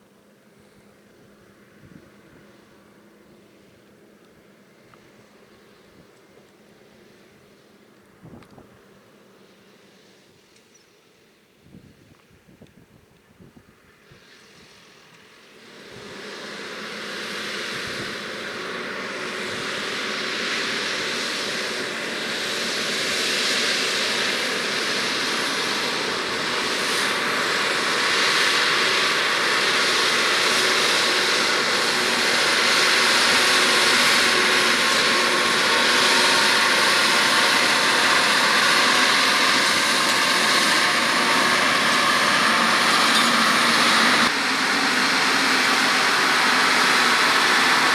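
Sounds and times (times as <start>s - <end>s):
tractor diesel engine under load: 15.4s - 47.9s.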